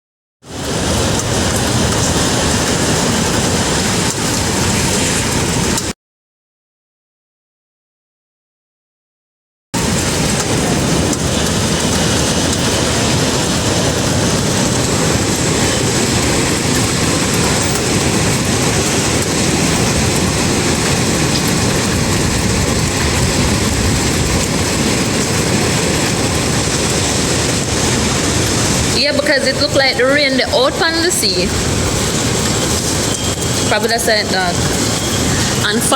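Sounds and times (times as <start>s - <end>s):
heavy rain: 0.4s - 6.0s, 9.8s - 35.9s
hurricane wind roaring: 0.4s - 6.0s, 9.8s - 35.9s.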